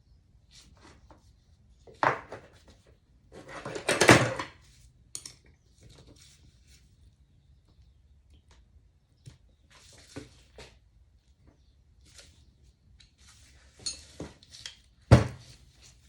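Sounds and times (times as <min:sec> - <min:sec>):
metal parts and tools clinking: 0:13.7 - 0:14.7.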